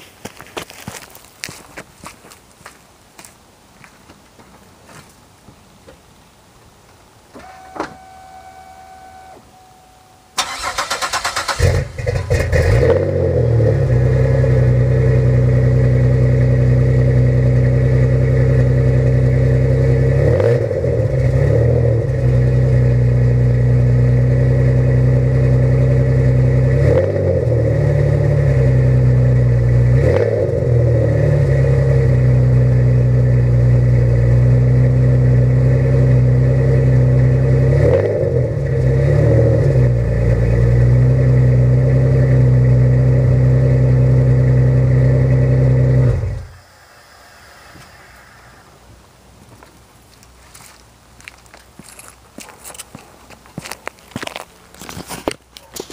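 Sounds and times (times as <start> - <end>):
car engine idling: 7.4 - 26.8
short electronic chime: 7.5 - 10.4
car engine cranking: 10.3 - 14.0.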